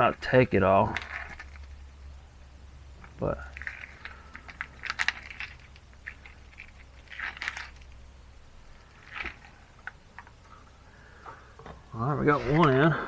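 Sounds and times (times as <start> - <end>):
plastic bottle crinkling: 0.8 - 1.8, 3.0 - 8.1, 8.7 - 10.4.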